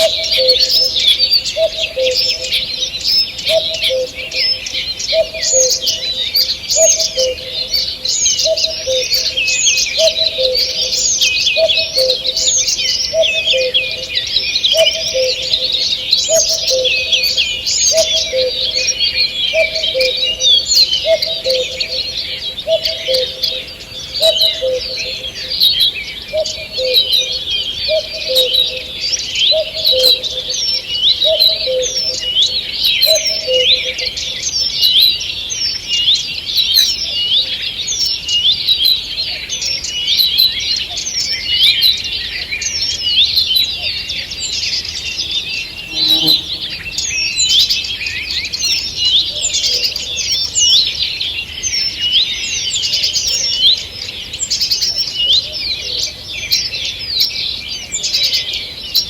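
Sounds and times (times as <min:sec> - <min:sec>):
songbirds chirping and trilling: 0:00.0 - 0:59.0
low two-note bird call: 0:45.9 - 0:47.0.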